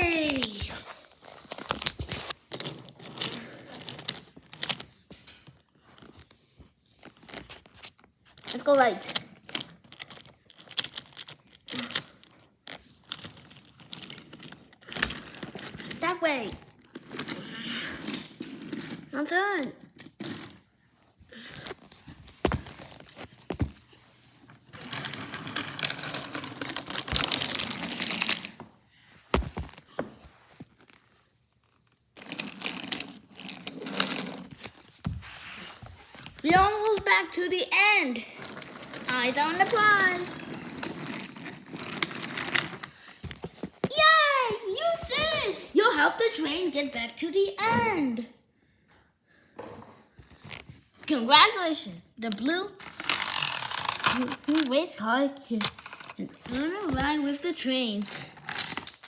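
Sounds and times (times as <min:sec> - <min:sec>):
toys clicking on hard surface: 0:52.2 - 0:54.9.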